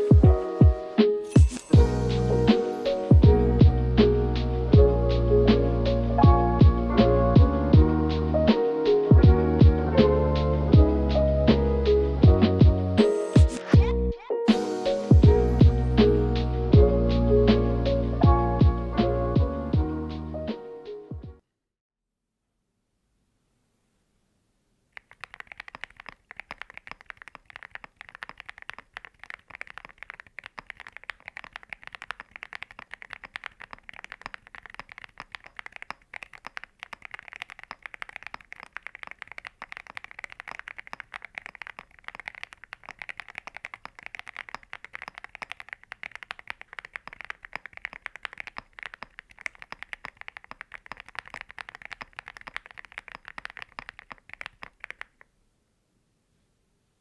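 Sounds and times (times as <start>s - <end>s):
fast typing on mechanical keyboard: 25.0s - 55.3s.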